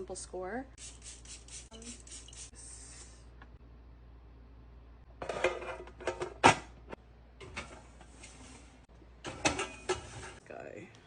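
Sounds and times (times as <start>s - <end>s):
kitchenware handling: 9.2s - 10.4s.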